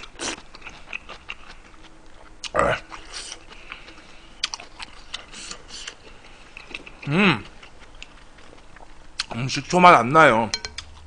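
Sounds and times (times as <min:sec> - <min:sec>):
man chewing food: 0:00.0 - 0:09.4, 0:10.7 - 0:11.0.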